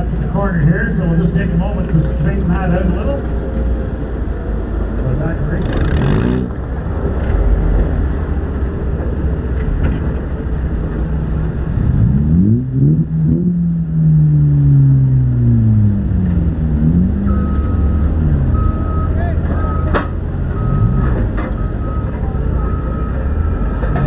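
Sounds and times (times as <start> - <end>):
engine revving: 5.0 - 7.6, 11.5 - 24.0
reversing beeper: 17.2 - 24.0.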